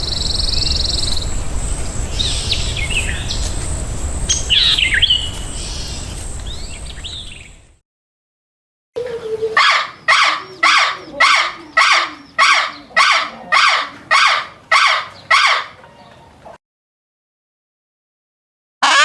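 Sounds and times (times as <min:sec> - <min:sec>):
animal call: 0:09.0 - 0:16.3.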